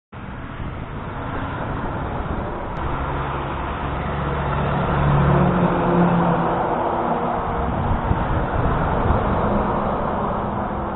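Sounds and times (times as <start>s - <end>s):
truck engine approaching: 0.2s - 10.9s
tyre and road noise: 0.2s - 10.9s.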